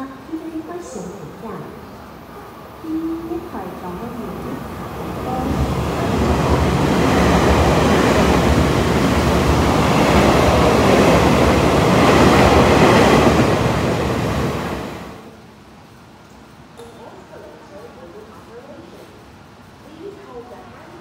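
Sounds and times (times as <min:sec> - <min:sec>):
train rushing past: 0:00.0 - 0:15.3
wheels rattling on rail: 0:04.0 - 0:15.1.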